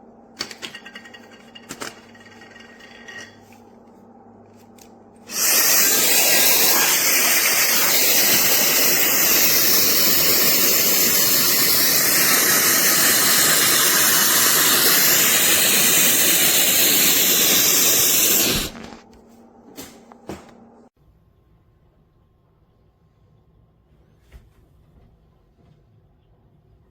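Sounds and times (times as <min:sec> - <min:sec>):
hair dryer running: 0:05.3 - 0:19.0.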